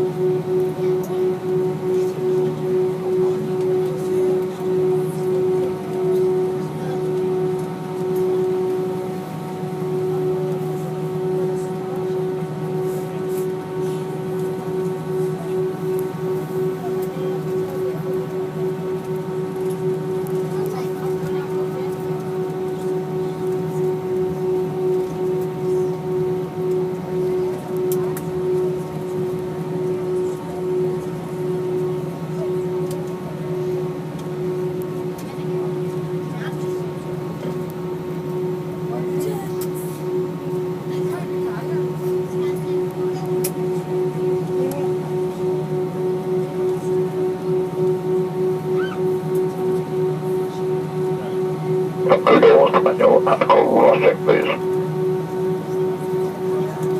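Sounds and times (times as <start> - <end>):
aircraft cabin droning hum: 0.0 - 56.9
steady whine: 47.7 - 56.9
aircraft cabin hum: 52.1 - 54.6.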